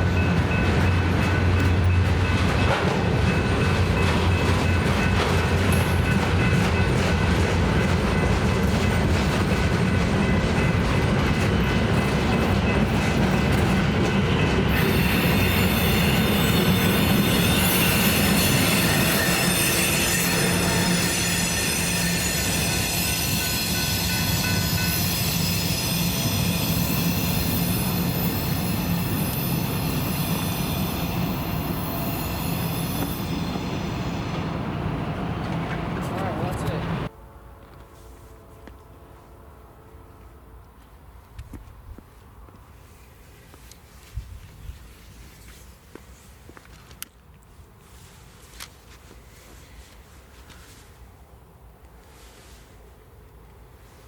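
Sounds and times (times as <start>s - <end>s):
train rolling past: 0.0s - 54.0s
wheels squealing: 14.6s - 34.8s.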